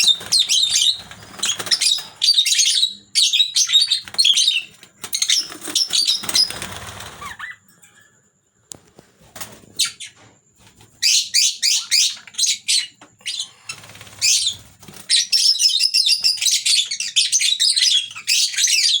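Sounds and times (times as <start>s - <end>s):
lovebirds chirping: 0.0s - 7.7s.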